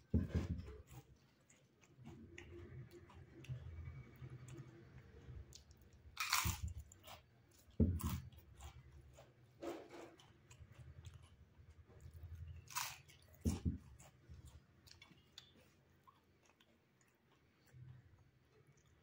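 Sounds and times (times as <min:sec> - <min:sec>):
person chewing: 0:00.0 - 0:19.0
crisp crunch: 0:05.6 - 0:10.5, 0:12.5 - 0:14.2.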